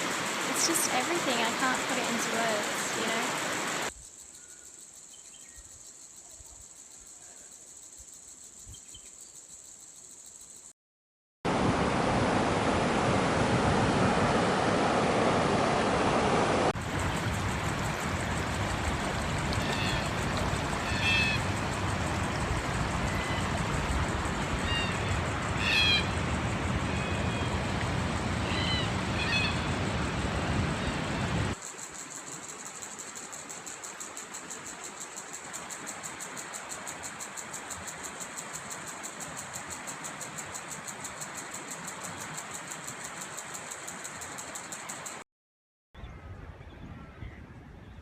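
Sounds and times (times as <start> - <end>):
water rushing: 0.0 - 3.9, 11.5 - 31.6.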